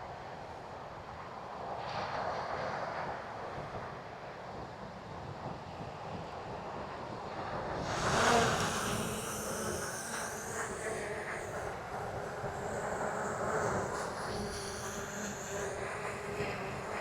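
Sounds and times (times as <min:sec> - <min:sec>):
drone propellers whirring: 0:07.8 - 0:17.0.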